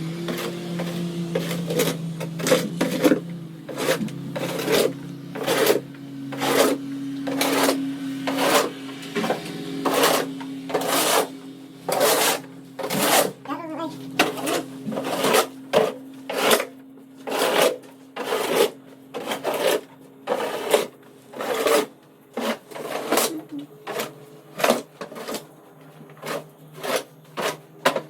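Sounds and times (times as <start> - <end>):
steady low hum: 0.0 - 19.2
snow shovel scraping pavement: 0.0 - 28.0.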